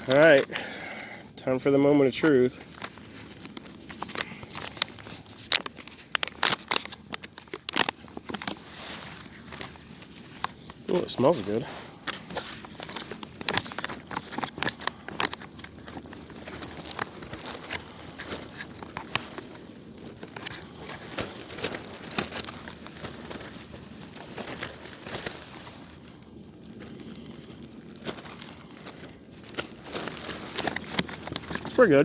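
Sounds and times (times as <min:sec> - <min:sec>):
food pouch crinkling: 0:02.0 - 0:32.0.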